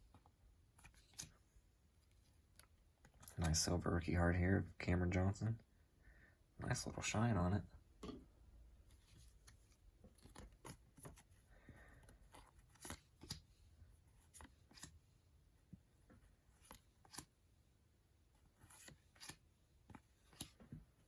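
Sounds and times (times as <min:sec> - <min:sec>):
trading cards rustling: 0:08.9 - 0:15.0, 0:16.5 - 0:17.3, 0:18.4 - 0:20.8.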